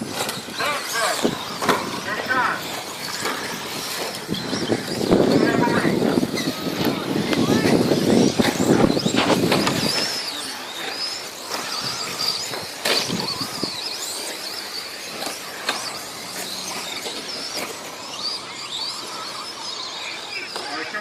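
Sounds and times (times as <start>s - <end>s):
high-pitched toy truck whine: 0.0s - 21.0s.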